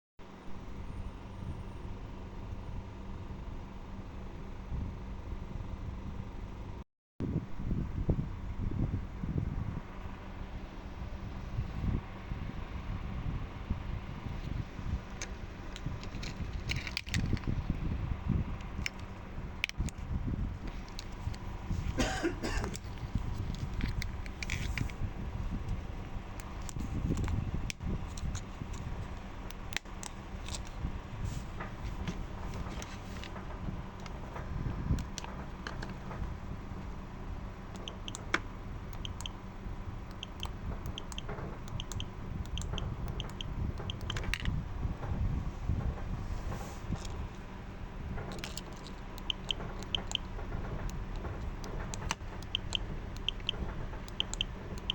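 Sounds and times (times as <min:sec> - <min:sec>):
steady low hum: 0:00.2 - 0:54.9
handling noises: 0:14.3 - 0:17.7, 0:18.6 - 0:27.4, 0:28.0 - 0:39.6
light clicks of small parts: 0:15.2 - 0:17.5, 0:48.2 - 0:54.9
small clicks: 0:40.1 - 0:44.6, 0:48.3 - 0:54.9.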